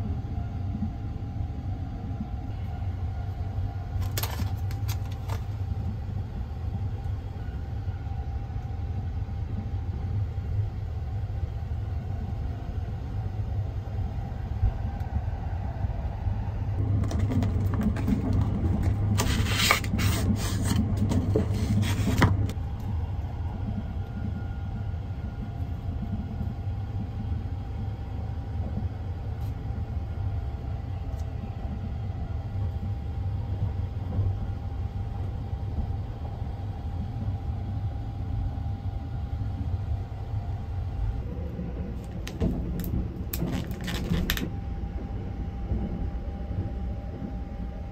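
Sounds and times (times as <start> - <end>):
sleeper train rumble: 0.0 - 47.9
cardboard rustling and scraping: 17.0 - 22.5, 43.4 - 44.4.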